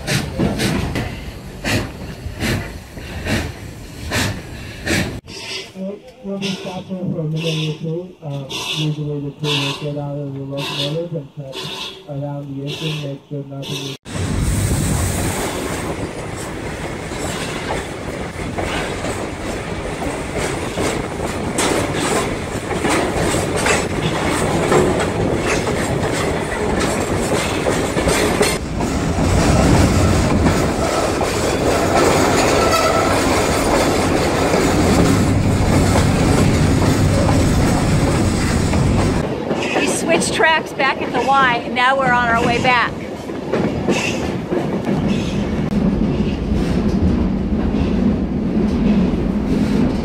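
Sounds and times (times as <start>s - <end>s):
train wheels clacking over rail joints: 0.0s - 5.2s, 15.9s - 41.4s, 42.1s - 50.0s
rattling rumble: 15.8s - 39.4s.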